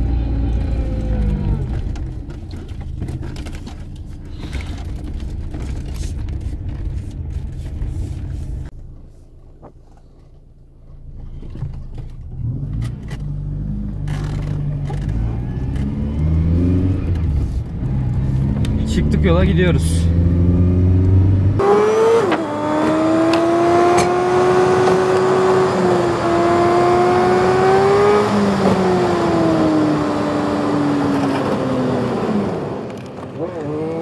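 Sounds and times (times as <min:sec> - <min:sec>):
car engine from inside cabin: 0:00.0 - 0:34.0.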